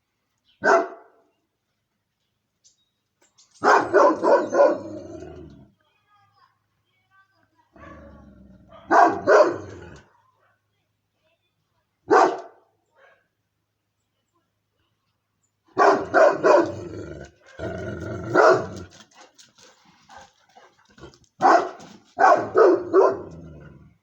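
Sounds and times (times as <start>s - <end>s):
dog barking: 0.6s - 1.2s, 3.6s - 4.9s, 8.7s - 9.8s, 12.1s - 13.3s, 15.8s - 16.8s, 18.3s - 18.9s, 21.4s - 23.4s.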